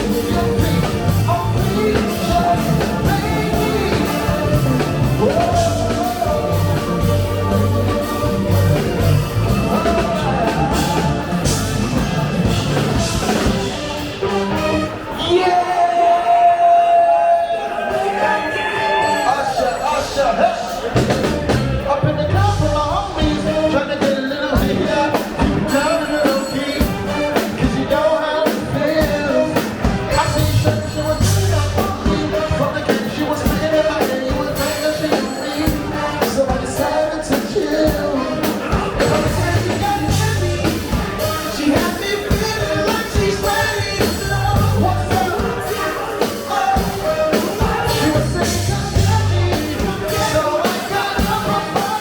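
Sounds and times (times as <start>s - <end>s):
funk band playing: 0.0s - 52.0s
person singing: 0.0s - 52.0s.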